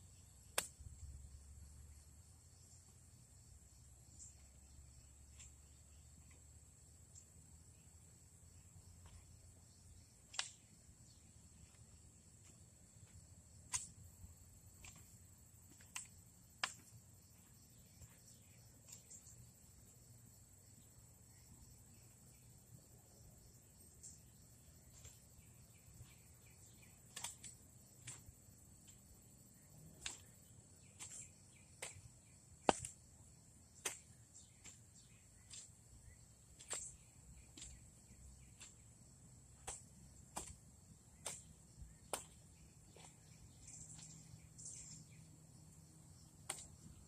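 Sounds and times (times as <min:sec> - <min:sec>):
insects chirring: 0:00.0 - 0:47.0
garden hoe chopping soil: 0:10.2 - 0:19.1, 0:24.8 - 0:29.2, 0:29.8 - 0:45.0, 0:46.3 - 0:47.0.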